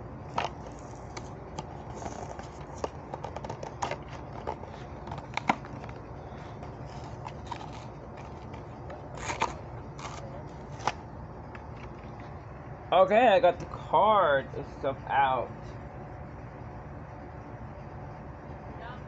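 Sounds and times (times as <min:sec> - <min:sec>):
plastic packaging crinkling: 0:00.3 - 0:11.0.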